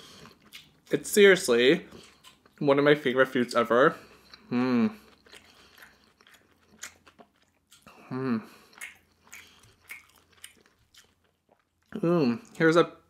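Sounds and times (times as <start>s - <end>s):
person chewing crunchy food: 0.0s - 1.0s, 1.8s - 2.7s, 4.0s - 12.6s
person humming: 7.9s - 8.5s.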